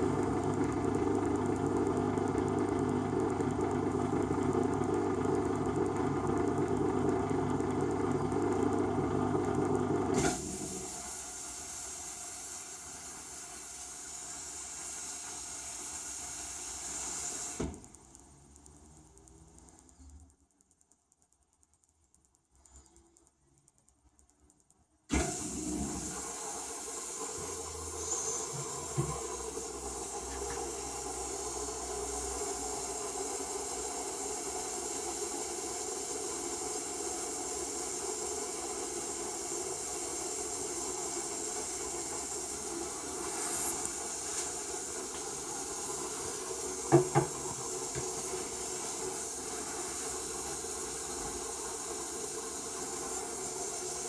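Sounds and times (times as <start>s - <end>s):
dishwasher starting: 25.1s - 31.1s, 43.2s - 49.2s
water spraying hiss: 43.1s - 54.0s.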